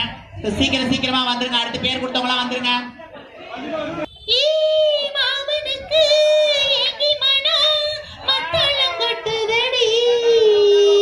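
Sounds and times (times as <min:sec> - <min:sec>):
high voice singing with vibrato: 0:04.2 - 0:11.0.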